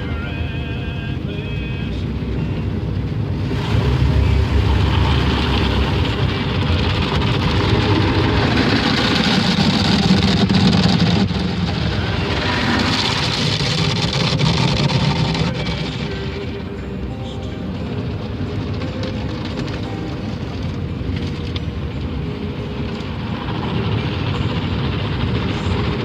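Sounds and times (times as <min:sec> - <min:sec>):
faint machine hum: 0:00.0 - 0:08.8
car wash rushing noise: 0:00.0 - 0:26.0.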